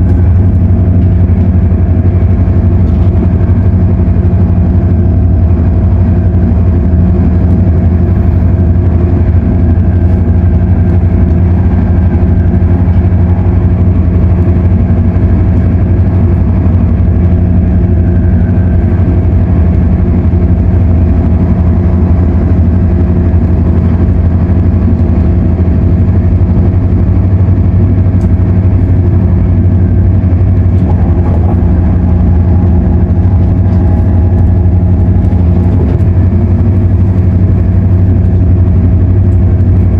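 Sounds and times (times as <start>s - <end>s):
droning running gear tones: 0.0s - 39.9s
train interior hum: 0.0s - 39.9s
higher tone: 28.6s - 39.0s.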